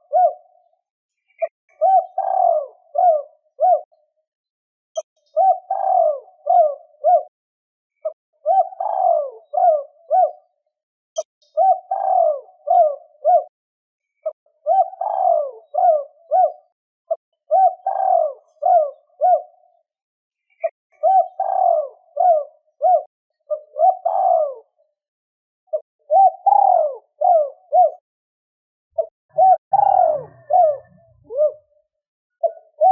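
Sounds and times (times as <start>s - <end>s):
dove cooing: 0.0s - 0.7s, 1.4s - 4.0s, 5.3s - 7.4s, 8.0s - 10.6s, 11.2s - 13.6s, 14.2s - 19.8s, 20.6s - 24.8s, 25.7s - 28.0s, 29.0s - 32.9s.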